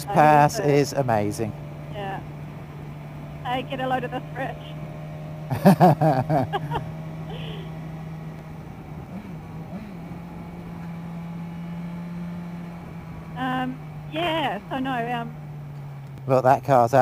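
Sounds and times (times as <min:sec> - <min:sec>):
person's voice: 0:00.0 - 0:02.2, 0:03.5 - 0:04.7, 0:06.4 - 0:07.6, 0:13.4 - 0:15.2
motorcycle engine cruising: 0:00.0 - 0:17.0.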